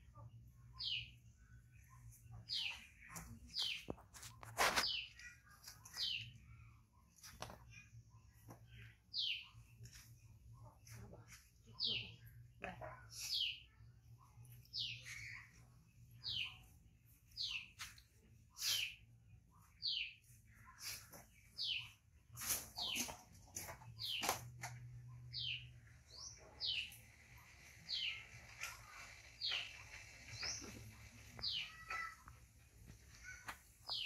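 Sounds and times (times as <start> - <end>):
bird high chirps: 25.3 - 32.5, 33.1 - 34.0.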